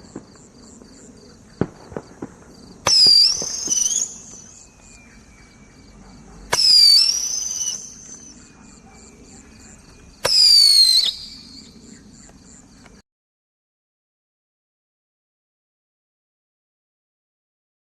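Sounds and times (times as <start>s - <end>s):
firework pop and whistle: 0.0s - 5.0s, 6.5s - 8.4s, 10.2s - 11.8s
crickets chirping: 0.0s - 13.0s.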